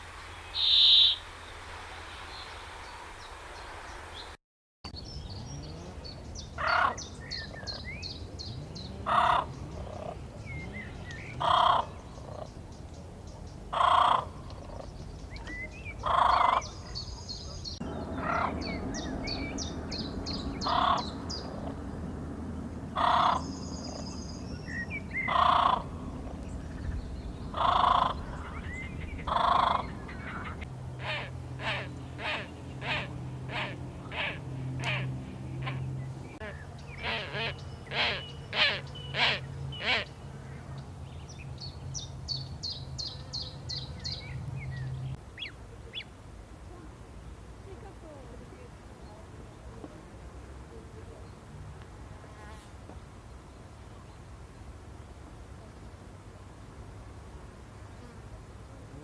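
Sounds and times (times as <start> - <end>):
small birds chirping in trills: 0.0 - 46.2
loud harsh bird call: 0.4 - 1.5, 27.5 - 40.2.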